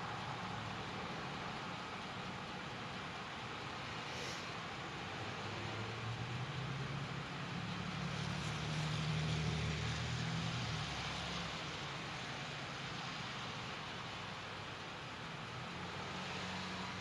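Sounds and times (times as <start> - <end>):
wind hiss: 0.0 - 5.9
wet road noise: 0.0 - 17.0.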